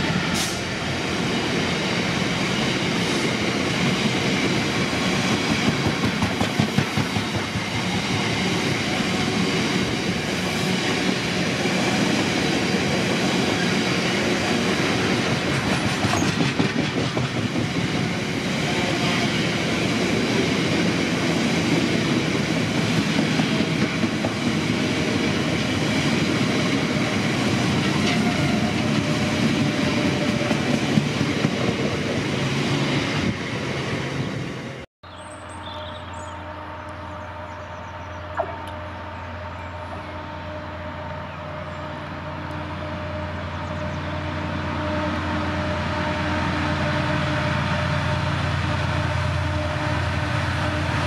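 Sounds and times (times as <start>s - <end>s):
freight train wheels clattering: 2.7s - 8.6s, 14.9s - 18.4s.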